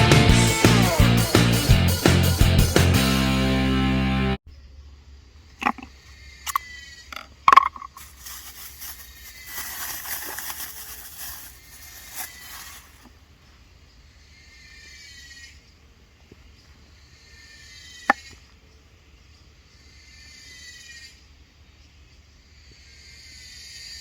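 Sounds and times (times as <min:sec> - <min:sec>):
music: 0:00.0 - 0:04.4
soft rustling hiss: 0:08.0 - 0:13.1.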